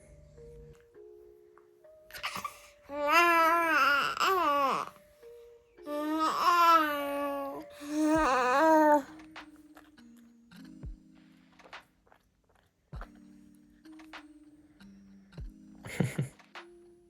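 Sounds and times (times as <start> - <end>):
soft background music: 0.0 - 17.0
baby babbling: 2.1 - 5.0, 5.8 - 9.1.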